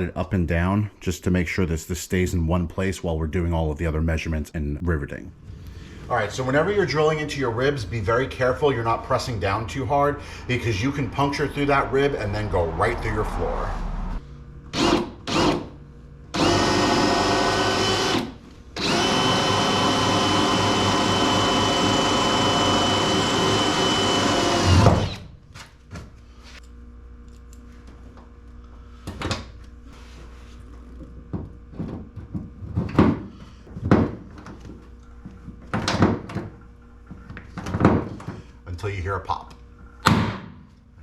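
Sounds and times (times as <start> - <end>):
power drill drilling into metal: 16.4 - 25.2.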